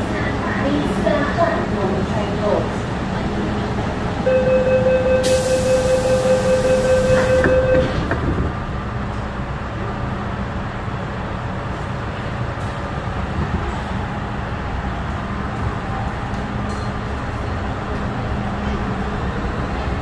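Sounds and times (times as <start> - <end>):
train running: 0.0 - 20.0
steady high tone: 4.2 - 7.9.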